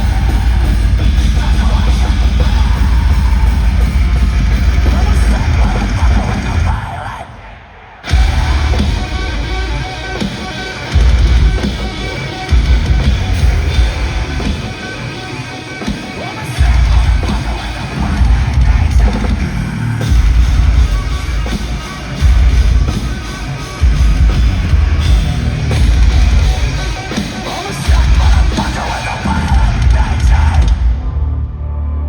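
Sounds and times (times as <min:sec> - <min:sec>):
drum kit: 0:00.0 - 0:07.1, 0:08.0 - 0:31.2
distorted guitars: 0:00.0 - 0:32.0
heavy low-end hits: 0:08.1 - 0:10.0.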